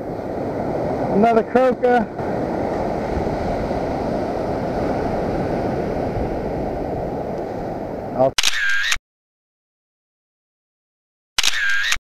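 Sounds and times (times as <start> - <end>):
wind on microphone: 0.0 - 8.3
ocean surf breaking: 0.0 - 8.4.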